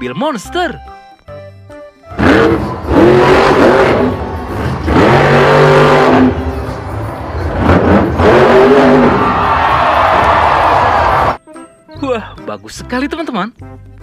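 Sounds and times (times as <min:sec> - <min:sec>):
car engine revving: 0:02.1 - 0:11.4.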